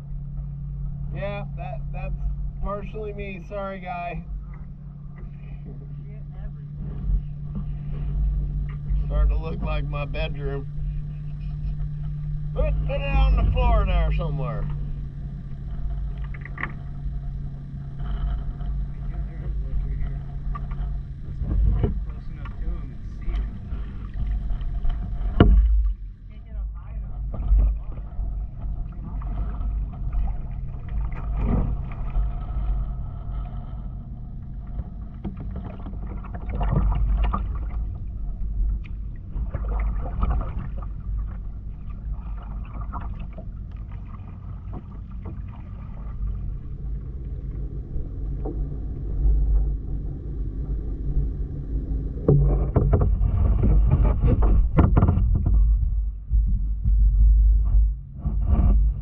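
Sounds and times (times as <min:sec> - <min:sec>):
steady low rumble: 0:00.0 - 0:59.0
paddle strokes splashing in water: 0:27.1 - 0:55.8.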